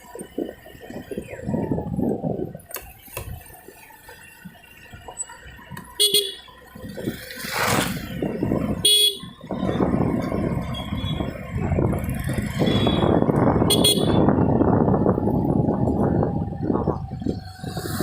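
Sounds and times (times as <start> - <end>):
scooter road and wind noise: 0.0 - 18.0
vehicle horn toots: 6.0 - 6.4, 8.8 - 9.4, 12.6 - 14.3.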